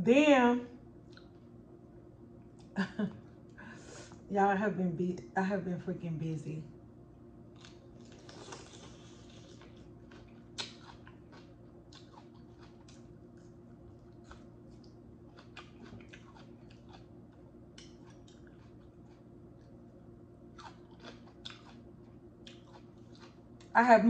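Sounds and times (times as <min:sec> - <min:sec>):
low hum: 0:00.0 - 0:24.0
crunchy chewing: 0:07.5 - 0:23.7.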